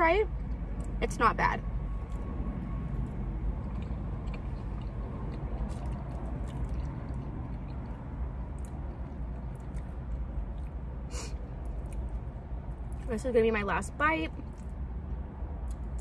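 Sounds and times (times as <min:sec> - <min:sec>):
steady low hum: 0:00.0 - 0:16.0
person chewing soft food: 0:02.0 - 0:13.1, 0:15.6 - 0:16.0.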